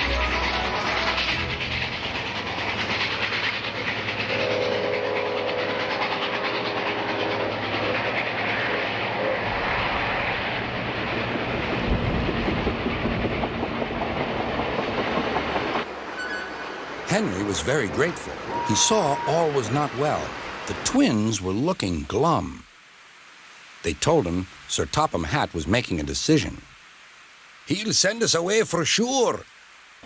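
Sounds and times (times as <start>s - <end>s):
steam whistle: 0.0s - 3.6s, 4.4s - 6.6s, 16.1s - 17.6s, 18.4s - 20.3s
steam locomotive exhaust and wheels: 0.0s - 22.7s.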